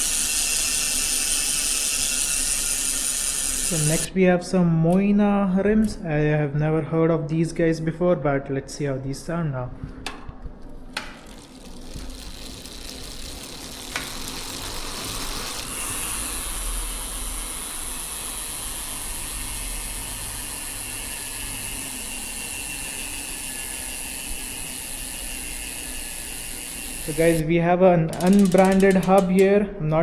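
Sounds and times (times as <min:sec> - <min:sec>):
bicycle freehub ratcheting buzz: 0:00.0 - 0:04.1, 0:11.1 - 0:27.4, 0:28.1 - 0:29.6.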